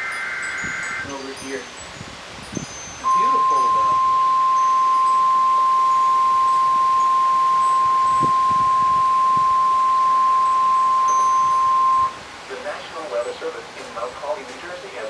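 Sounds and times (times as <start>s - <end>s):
loud high alarm beep: 0.0s - 1.2s, 3.0s - 12.2s.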